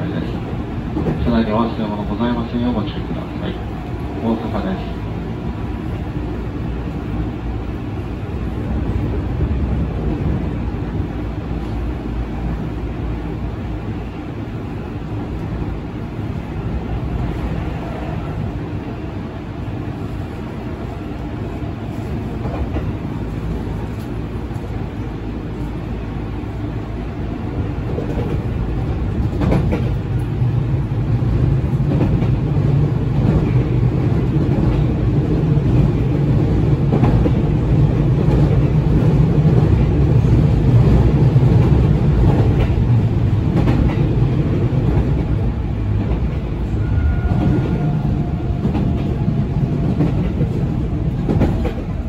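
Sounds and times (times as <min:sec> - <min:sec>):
rail joint clacks: 0:00.0 - 0:06.0, 0:22.0 - 0:24.8, 0:27.6 - 0:52.0
train wheels rumbling on rails: 0:00.0 - 0:52.0.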